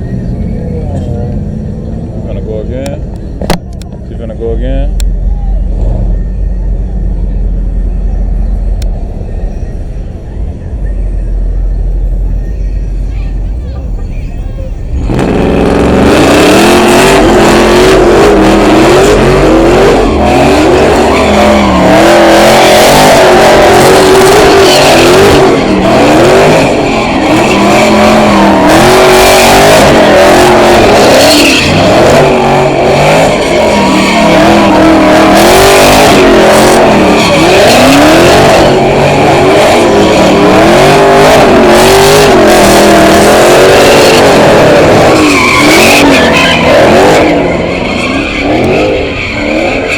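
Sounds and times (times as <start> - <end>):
car engine revving: 0.0 - 49.9
tyres screeching: 5.0 - 49.9.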